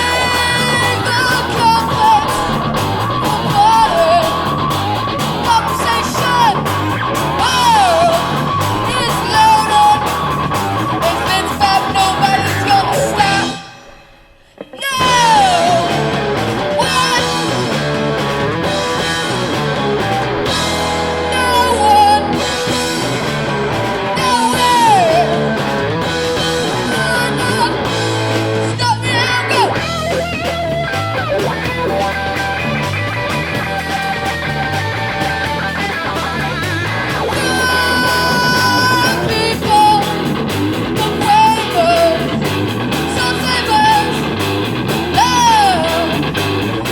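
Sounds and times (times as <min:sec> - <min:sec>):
person singing: 0:00.0 - 0:17.9, 0:19.0 - 0:25.8, 0:26.4 - 0:30.4, 0:37.2 - 0:44.4, 0:45.0 - 0:46.3
electric guitar: 0:00.0 - 0:46.9
rock band playing: 0:00.0 - 0:46.9.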